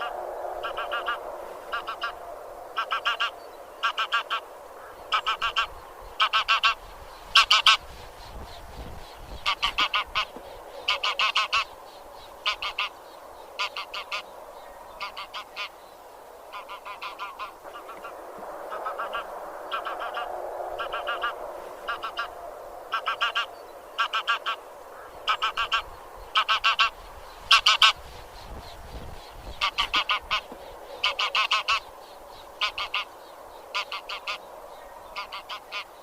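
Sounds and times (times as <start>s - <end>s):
geese honking: 0.0s - 2.2s, 2.8s - 6.8s, 7.4s - 7.8s, 9.4s - 11.7s, 12.4s - 12.9s, 13.6s - 14.2s, 15.0s - 15.7s, 16.5s - 28.0s, 29.6s - 31.9s, 32.6s - 33.1s, 33.7s - 34.4s, 35.2s - 35.9s
flock chatter: 0.0s - 15.8s, 16.5s - 36.0s.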